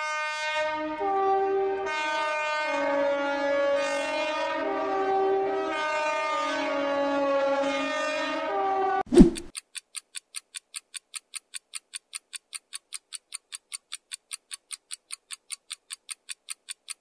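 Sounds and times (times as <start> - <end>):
air raid siren: 0.0 - 9.1.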